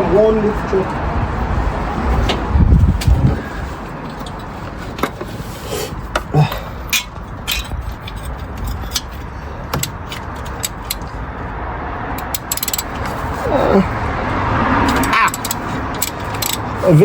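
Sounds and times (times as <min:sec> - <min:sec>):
steady low rumble: 0:00.0 - 0:16.9
metallic clicks of hand tools: 0:06.9 - 0:11.2, 0:12.2 - 0:13.2, 0:14.8 - 0:16.7.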